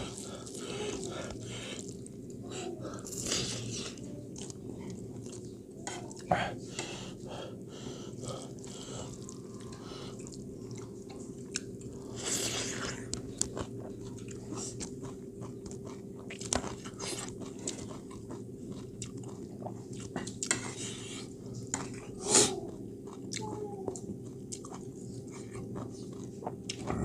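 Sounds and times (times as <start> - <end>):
chewing and biting: 8.4 - 21.0, 21.6 - 27.0
low hum: 26.7 - 27.0.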